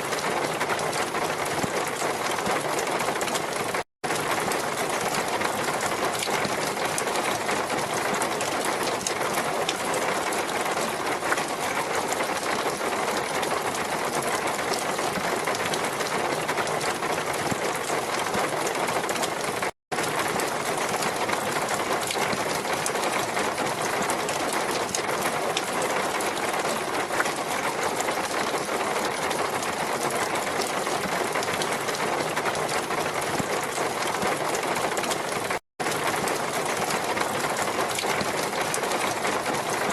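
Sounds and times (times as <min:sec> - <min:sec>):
steady water noise: 0:00.0 - 0:39.9.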